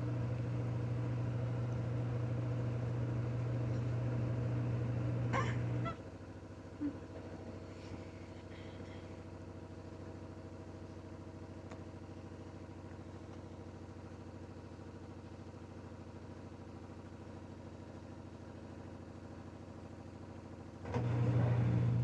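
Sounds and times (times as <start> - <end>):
washing machine spinning: 0.0 - 6.5, 20.8 - 22.0.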